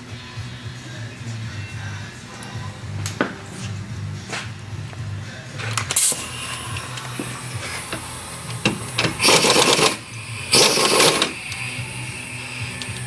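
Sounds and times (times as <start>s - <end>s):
pneumatic tool bursts: 6.0s - 12.7s.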